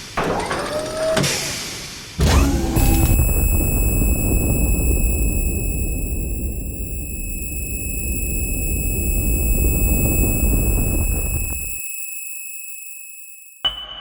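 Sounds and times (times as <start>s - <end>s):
low rumbling noise: 2.4s - 11.8s
high-pitched electronic tone: 2.4s - 13.6s.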